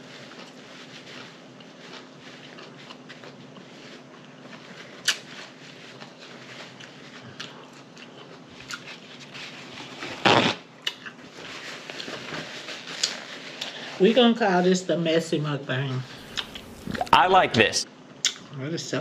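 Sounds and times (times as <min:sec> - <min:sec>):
wet chewing with lip smacks: 0:01.6 - 0:09.0, 0:16.2 - 0:17.2.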